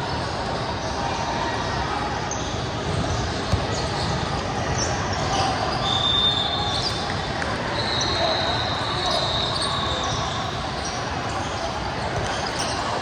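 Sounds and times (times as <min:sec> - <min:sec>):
crowd chatter echoing: 0:00.0 - 0:13.0
sneaker squeaks: 0:02.3 - 0:13.0
ball bouncing on hardwood court: 0:12.1 - 0:12.7.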